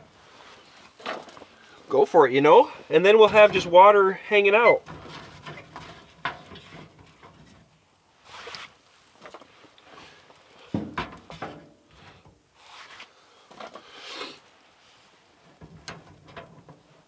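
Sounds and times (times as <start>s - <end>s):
camp gear knocking and rustling: 0.0s - 1.9s, 2.7s - 12.4s, 15.4s - 17.0s.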